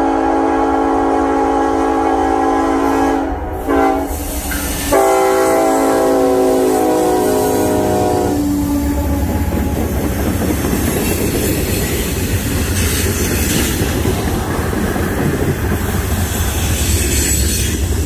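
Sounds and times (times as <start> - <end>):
locomotive horn: 0.0 - 10.0
train wheels rumbling on rails: 2.8 - 18.0.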